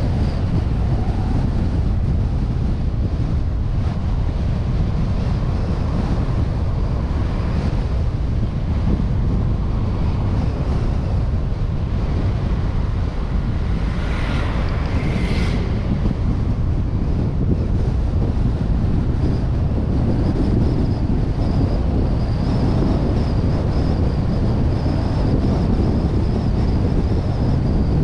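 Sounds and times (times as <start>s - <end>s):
road and engine rumble: 0.0s - 28.0s
wind buffeting camera: 0.0s - 28.0s.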